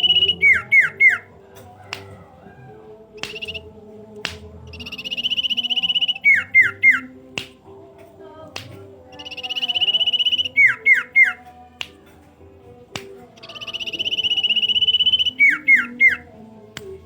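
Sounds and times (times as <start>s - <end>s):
bird down-slurred whistles: 0.0s - 1.3s, 3.2s - 3.7s, 4.7s - 7.1s, 9.2s - 11.4s, 13.4s - 16.3s
bird trilling: 0.0s - 1.4s, 3.2s - 3.7s, 4.7s - 7.1s, 9.1s - 11.5s, 13.4s - 16.3s
sharp clicks: 3.2s - 3.6s.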